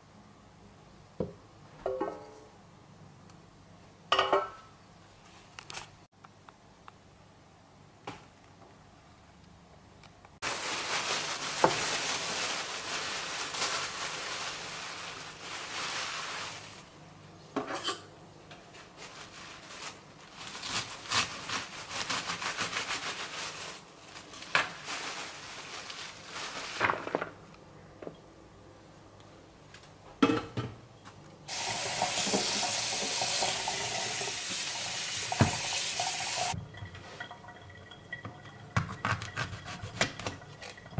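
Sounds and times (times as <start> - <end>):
dishes and utensils clinking: 17.6 - 18.1.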